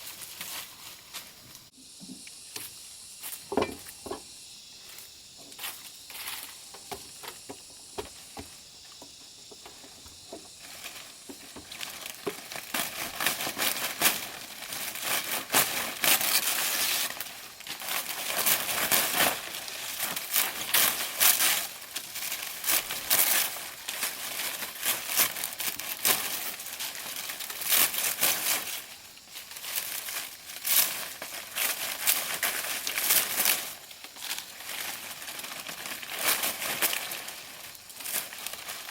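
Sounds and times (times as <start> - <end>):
dry leaves crackling: 0.0 - 1.7, 9.6 - 38.9.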